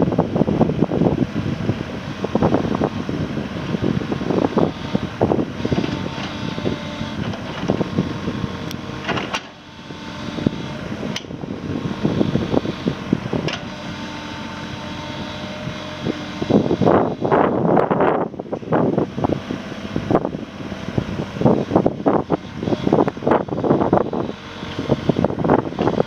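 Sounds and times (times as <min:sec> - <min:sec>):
diesel engine running: 0:00.0 - 0:26.0
sharp clicks or knocks: 0:13.5 - 0:13.7.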